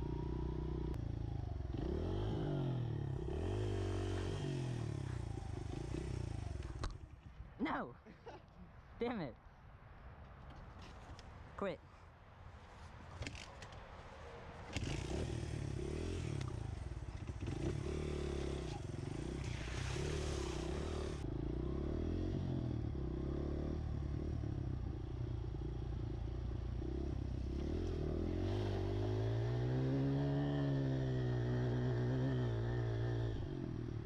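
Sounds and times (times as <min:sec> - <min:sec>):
small motorcycle engine revving: 0:00.0 - 0:06.8, 0:14.7 - 0:34.0.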